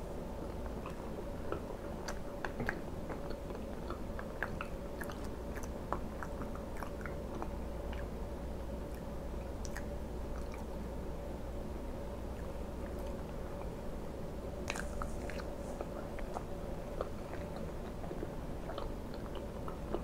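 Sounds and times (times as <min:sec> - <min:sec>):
person chewing: 0:00.4 - 0:08.1, 0:08.9 - 0:10.8, 0:14.6 - 0:20.0
mouth clicks and smacks: 0:08.9 - 0:10.7.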